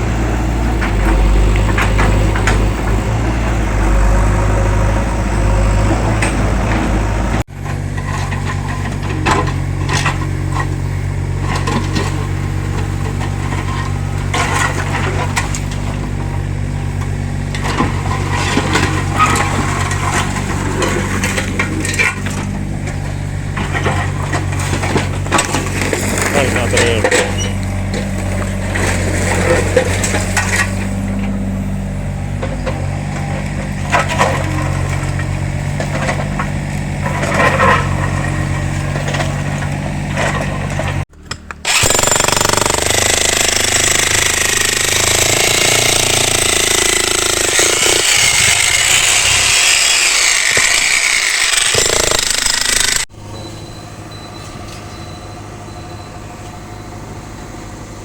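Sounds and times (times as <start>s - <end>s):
machine engine running: 25.2s - 32.5s, 41.6s - 53.1s
harsh din of breaking: 41.6s - 53.1s.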